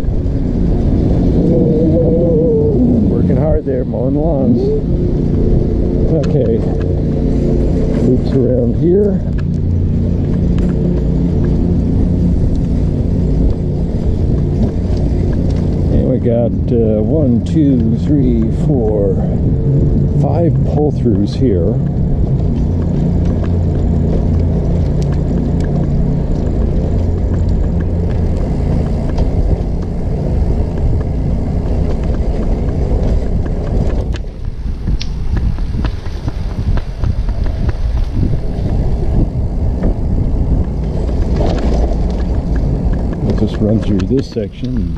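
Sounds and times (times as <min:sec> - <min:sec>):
small engine droning: 0:00.0 - 0:44.9
trike rolling noise: 0:00.0 - 0:44.9
wind buffeting microphone: 0:00.0 - 0:44.9
light ticks: 0:06.2 - 0:07.0, 0:09.1 - 0:11.7, 0:12.4 - 0:15.9, 0:20.6 - 0:38.9.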